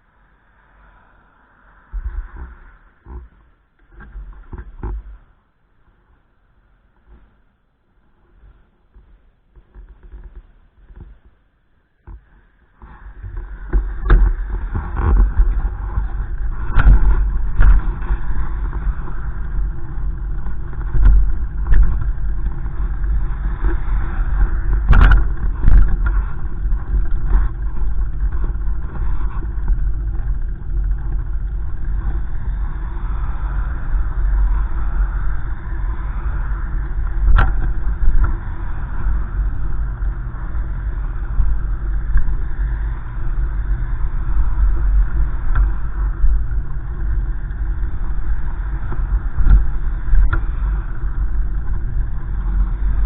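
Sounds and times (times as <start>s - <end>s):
wind buffeting microphone: 12.0s - 53.0s.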